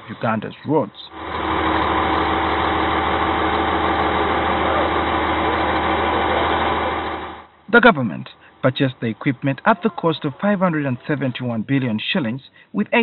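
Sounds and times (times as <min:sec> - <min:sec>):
diesel engine idling: 0:01.1 - 0:07.6.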